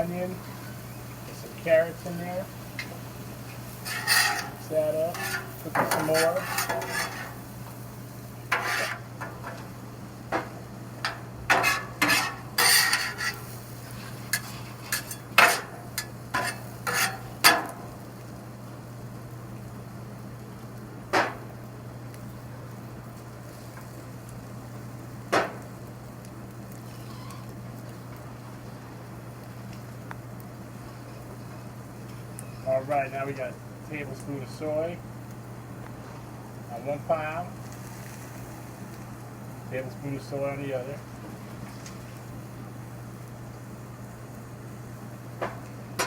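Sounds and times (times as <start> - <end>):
low steady hum: 0.0 - 46.0
metal spatula scraping griddle: 1.6 - 7.8, 8.4 - 9.7, 11.1 - 17.8.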